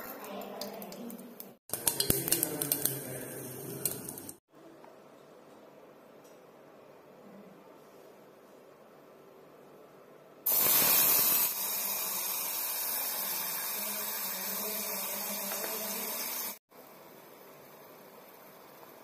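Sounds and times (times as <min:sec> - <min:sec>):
frying and bubbling: 0:00.0 - 0:04.4, 0:10.5 - 0:19.0
paste sizzling in hot oil: 0:10.5 - 0:19.0.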